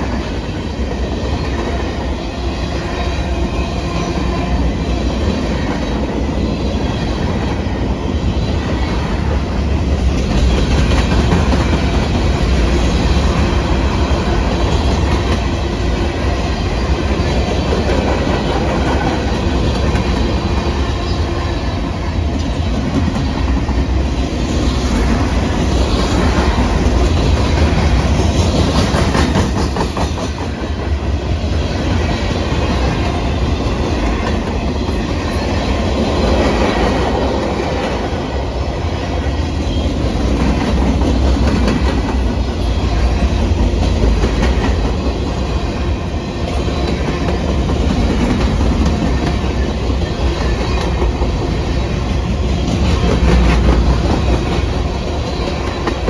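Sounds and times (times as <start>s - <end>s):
low rumble of train: 0.0s - 56.0s
train wheels clacking over rail joints: 9.9s - 16.0s, 24.8s - 31.0s, 39.7s - 45.5s, 46.4s - 56.0s.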